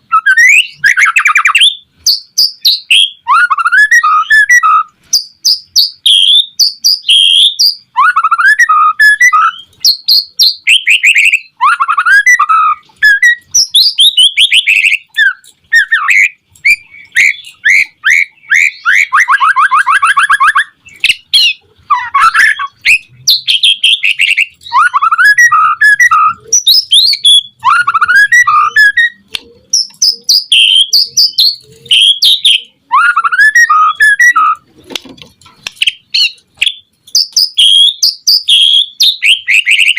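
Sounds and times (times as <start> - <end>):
bird singing whistles and chirps: 0.1 - 34.7, 35.8 - 39.9
fast rattling bird trill: 0.3 - 34.7, 35.8 - 39.9.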